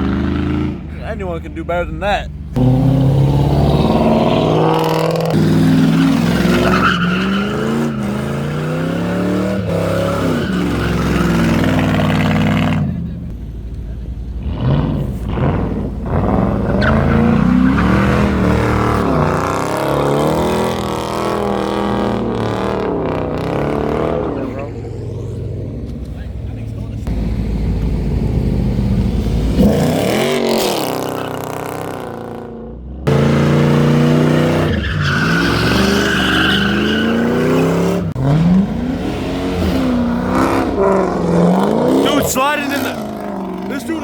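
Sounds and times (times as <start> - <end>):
tires squealing: 0.0 - 13.4, 14.4 - 32.3, 33.1 - 44.0
car engine revving hard: 2.6 - 13.3, 14.4 - 25.5, 28.0 - 32.5, 33.1 - 44.0.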